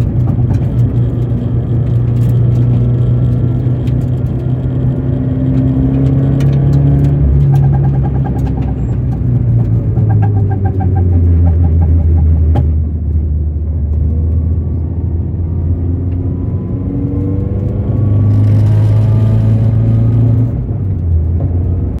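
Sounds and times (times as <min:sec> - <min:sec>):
car engine humming: 0:00.0 - 0:22.0
rapid repeating ticking: 0:07.0 - 0:12.3.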